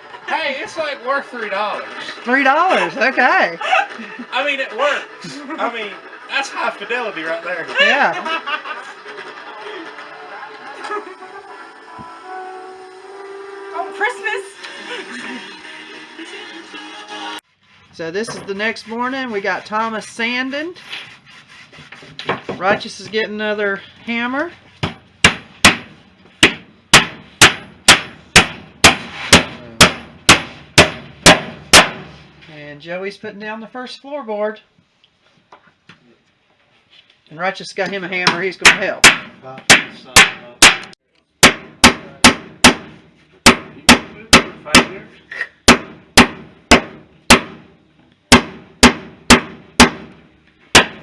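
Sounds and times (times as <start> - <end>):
hammer striking nails into wood: 24.8 - 32.1, 38.2 - 45.0, 45.7 - 47.7, 48.3 - 51.0.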